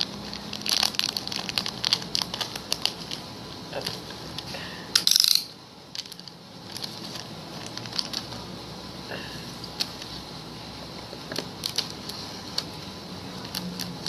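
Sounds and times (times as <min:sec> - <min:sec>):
small hard parts clicking and rattling: 0:03.8 - 0:08.3.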